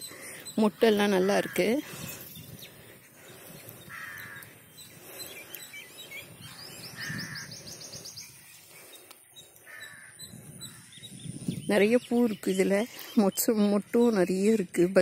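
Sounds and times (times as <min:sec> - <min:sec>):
harsh bird calls: 0:00.0 - 0:14.7
high bird chirps: 0:03.4 - 0:14.8.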